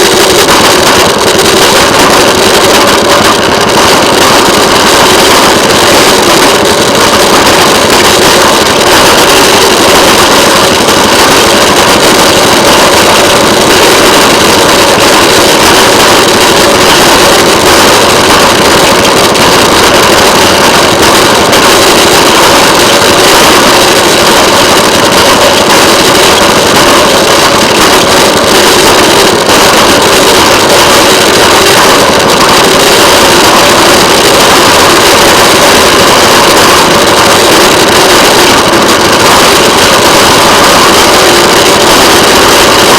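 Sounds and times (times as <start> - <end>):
railway motorcar engine running: 0.0 - 8.9
small engine running on rails: 0.0 - 42.9.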